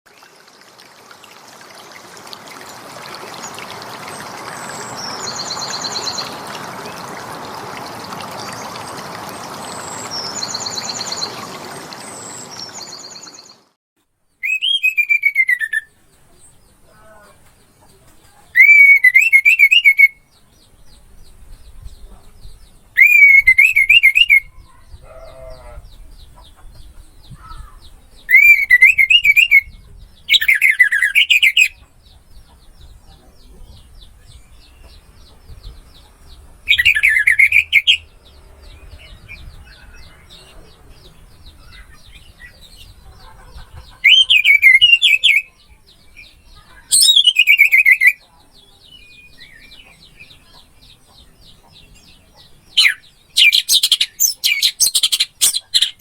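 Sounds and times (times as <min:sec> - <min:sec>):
thrush whistled song: 0:14.4 - 0:15.9, 0:18.6 - 0:20.2, 0:23.0 - 0:24.5, 0:28.3 - 0:29.7.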